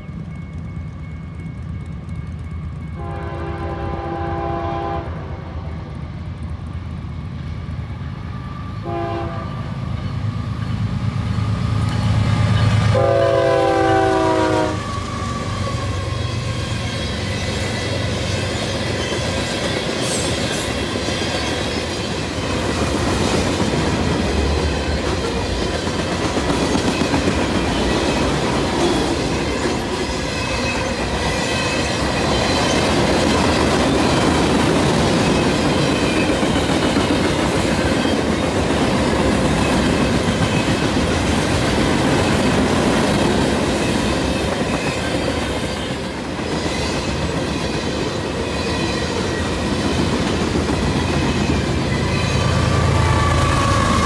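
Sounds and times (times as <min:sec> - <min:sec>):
locomotive horn blasts: 0:03.0 - 0:05.3, 0:08.8 - 0:09.8, 0:12.9 - 0:15.0, 0:52.5 - 0:54.0.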